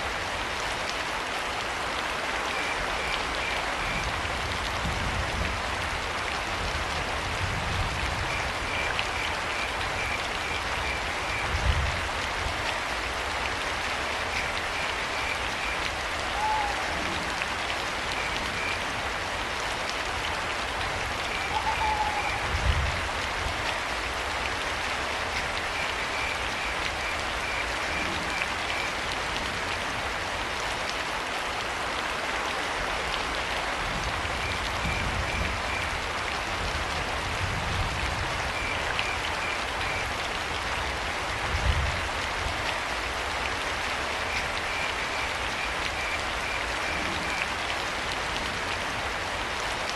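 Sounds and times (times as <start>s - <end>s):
steady rain falling: 0.0s - 49.9s
owl hoots: 16.3s - 17.0s, 21.4s - 22.4s.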